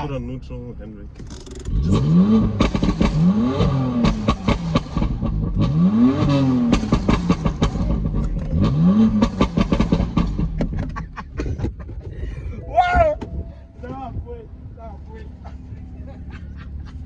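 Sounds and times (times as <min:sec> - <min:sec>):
exhaust crackles and pops: 0:01.2 - 0:03.4, 0:04.0 - 0:12.2
car engine revving: 0:01.2 - 0:11.1.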